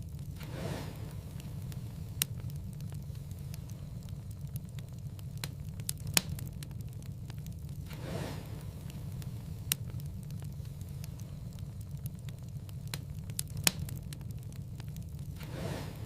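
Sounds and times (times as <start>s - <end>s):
loud fire pops: 0.0s - 16.0s
low fire rumble: 0.0s - 16.0s
wood fire crackling: 0.0s - 16.0s
soft rush: 0.3s - 5.5s, 7.4s - 12.2s, 15.4s - 16.0s.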